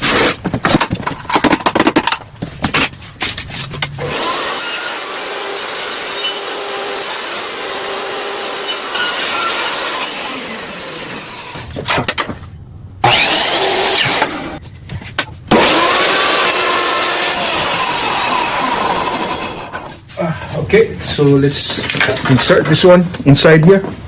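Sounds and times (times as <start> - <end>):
table saw cutting wood: 4.0 - 11.7, 13.0 - 14.6, 15.5 - 19.9.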